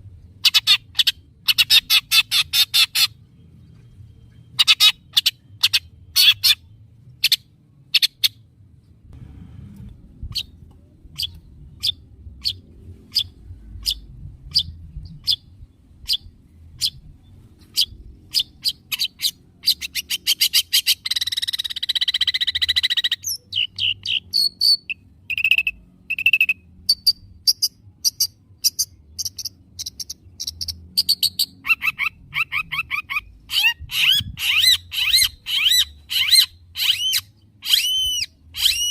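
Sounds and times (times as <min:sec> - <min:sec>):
harsh raspy bird call: 0:31.6 - 0:38.9.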